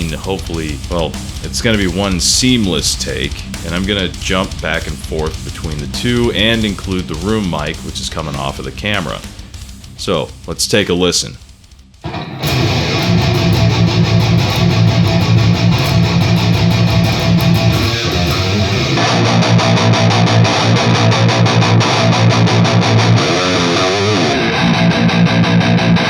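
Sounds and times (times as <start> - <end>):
distorted electric guitar metal riff: 0.0 - 26.0.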